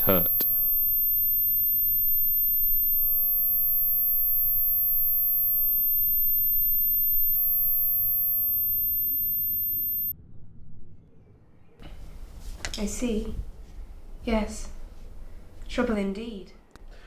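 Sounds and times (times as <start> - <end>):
high-pitched sine tone: 0.0 - 10.1
faint low rumble: 1.0 - 15.4.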